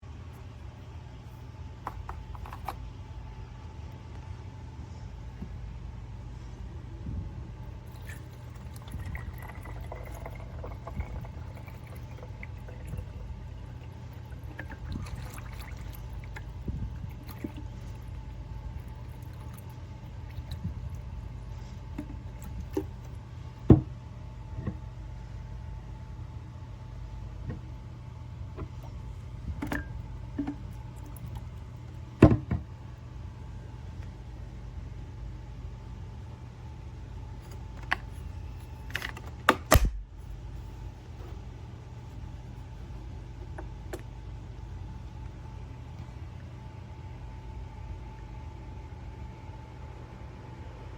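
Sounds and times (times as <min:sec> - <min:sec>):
low hum: 0:00.0 - 0:50.9
liquid pouring and trickling: 0:07.8 - 0:21.2.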